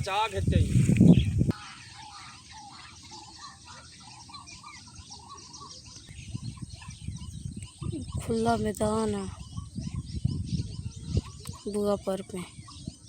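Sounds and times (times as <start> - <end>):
birds chirping and calling: 0.0 - 13.0.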